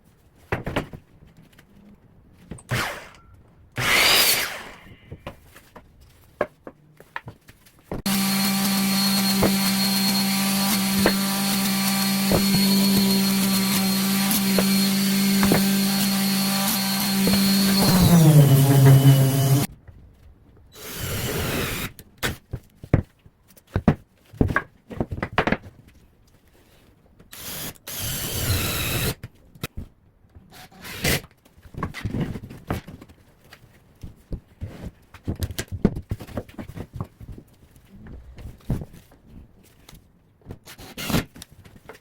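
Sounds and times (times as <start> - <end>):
power tool running: 3.8 - 4.9, 8.1 - 19.7.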